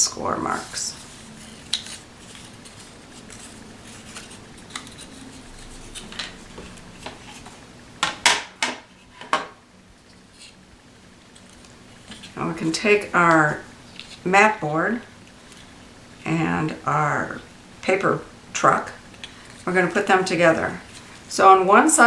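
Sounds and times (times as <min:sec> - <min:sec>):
stiff paper folding crackles: 0:00.1 - 0:07.7, 0:11.2 - 0:15.9, 0:19.0 - 0:21.4.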